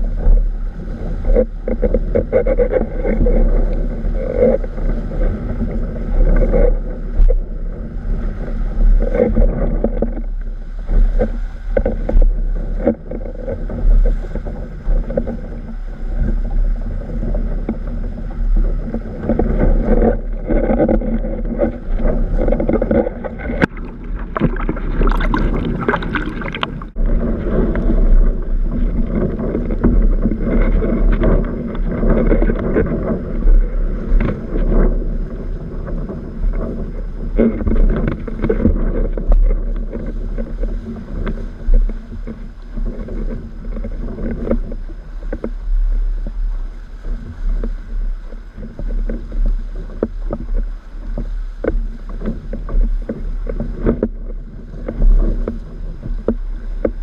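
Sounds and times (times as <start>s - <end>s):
wind rumble on microphone: 0.0s - 57.0s
water slapping against board: 18.8s - 28.1s.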